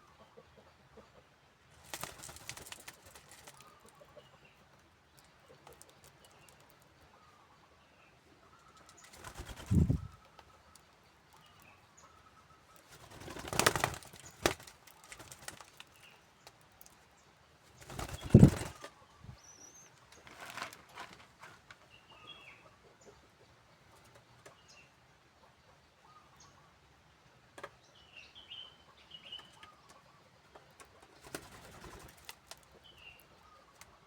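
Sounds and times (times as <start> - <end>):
doves flapping wings: 1.8 - 3.8, 9.0 - 10.2, 12.8 - 16.0, 17.7 - 18.9, 31.1 - 32.7.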